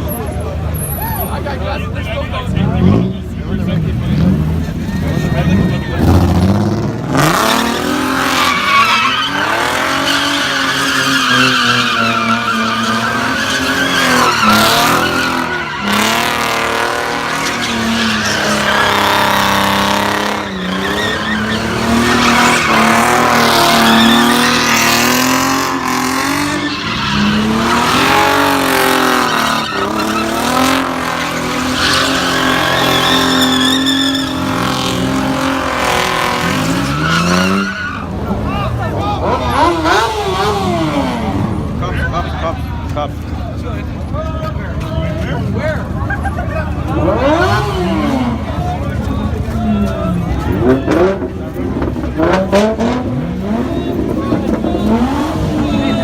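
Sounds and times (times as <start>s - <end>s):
car engine revving high: 2.6s - 41.9s, 46.8s - 56.0s
tyres squealing: 7.7s - 41.2s.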